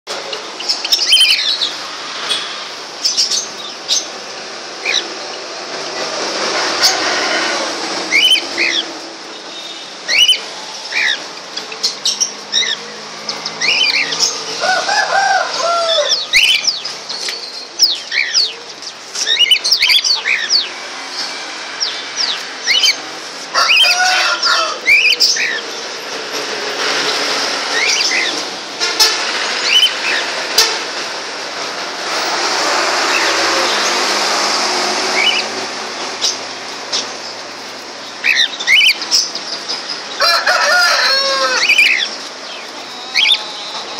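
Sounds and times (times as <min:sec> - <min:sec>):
caged birds chirping: 0:00.1 - 0:43.9
rushing noise: 0:00.1 - 0:43.9.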